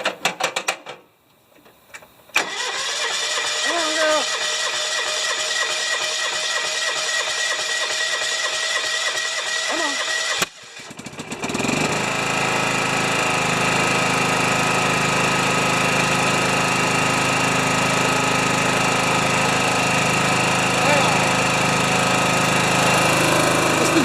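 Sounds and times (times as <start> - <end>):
engine cranking: 2.4 - 11.8
small gasoline engine running: 2.4 - 24.0.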